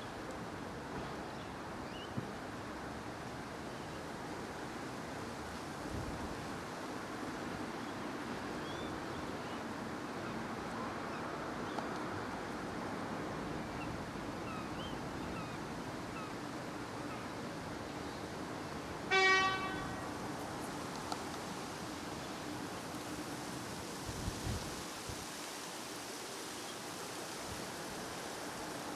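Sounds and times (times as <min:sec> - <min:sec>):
outdoor background noise: 0:00.0 - 0:28.9
vehicle horn honk: 0:19.1 - 0:20.1.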